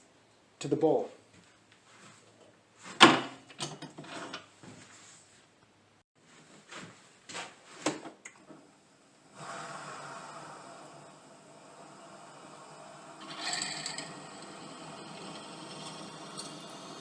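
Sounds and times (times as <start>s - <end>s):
small workshop machine running: 9.1s - 17.0s.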